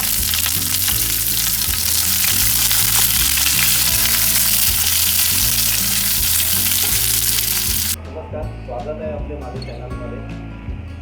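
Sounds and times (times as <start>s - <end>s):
onions sizzling in oil: 0.0s - 8.0s
music with low held notes: 0.0s - 11.0s.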